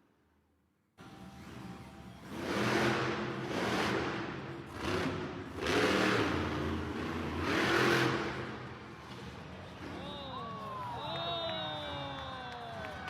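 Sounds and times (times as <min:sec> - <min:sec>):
monster truck engine revving: 0:01.3 - 0:10.2.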